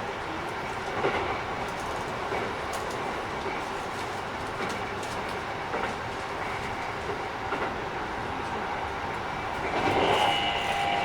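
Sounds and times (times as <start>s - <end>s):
rail joint clicks: 0.0s - 11.0s
train wheels rumbling on rail: 0.0s - 11.0s.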